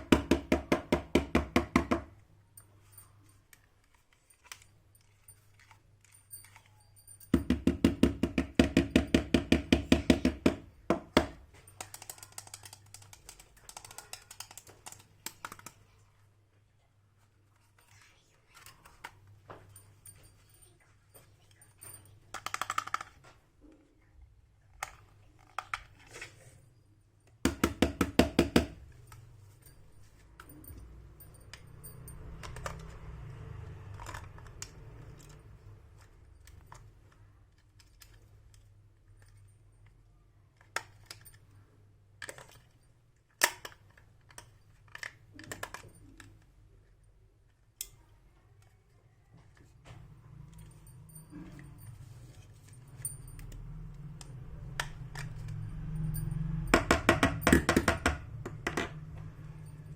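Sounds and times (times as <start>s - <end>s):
plastic toy pieces clicking: 11.2s - 15.8s, 22.3s - 23.2s, 42.2s - 46.4s.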